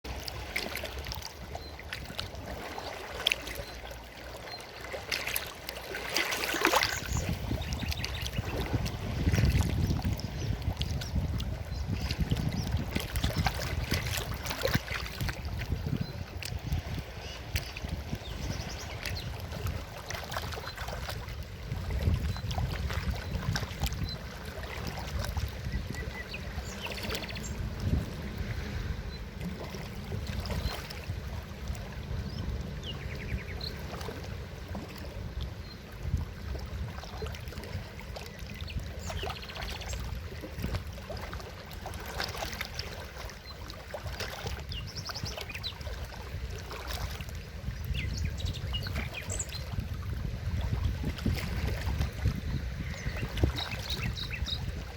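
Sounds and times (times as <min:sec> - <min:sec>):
water splashes: 0:00.0 - 0:54.9
river water rushing: 0:02.2 - 0:09.4.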